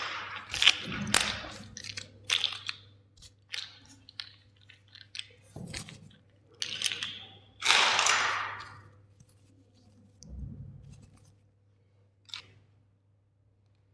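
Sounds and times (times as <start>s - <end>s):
plastic toy crackling and crunching: 0.0s - 6.0s, 6.6s - 8.8s.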